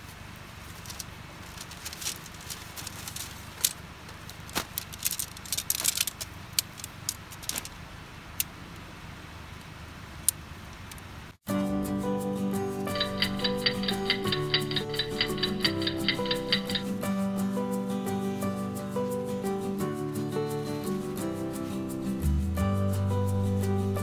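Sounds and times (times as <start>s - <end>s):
low background noise: 0.0s - 11.4s
tent poles clicking and rattling: 0.4s - 7.8s, 12.9s - 17.1s.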